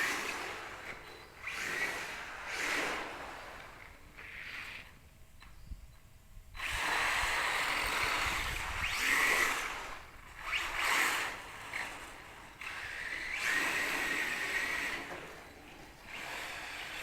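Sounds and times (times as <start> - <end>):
electric motor whine: 6.6 - 17.0.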